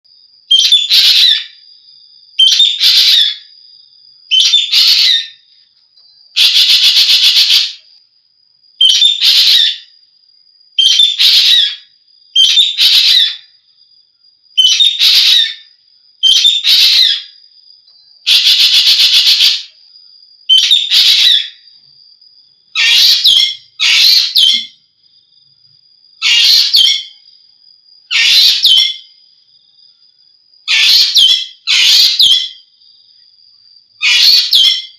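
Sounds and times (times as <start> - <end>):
starling shrill calls: 0.5 - 1.5, 2.4 - 3.4, 4.3 - 5.4, 6.4 - 7.8, 8.8 - 9.9, 10.8 - 11.8, 12.4 - 13.5, 14.6 - 15.6, 16.2 - 17.3, 18.3 - 19.7, 20.5 - 21.6, 22.8 - 24.7, 26.2 - 27.2, 28.1 - 29.0, 30.7 - 32.6, 34.0 - 34.9
faint steady high tone: 5.3 - 6.4, 17.2 - 18.3, 19.7 - 22.8.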